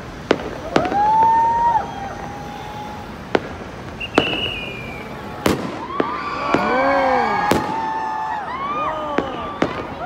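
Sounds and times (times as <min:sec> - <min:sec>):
fireworks bangs: 0:00.0 - 0:10.0
voices whooping: 0:00.5 - 0:03.2, 0:04.0 - 0:10.0
high whistle: 0:04.0 - 0:05.2.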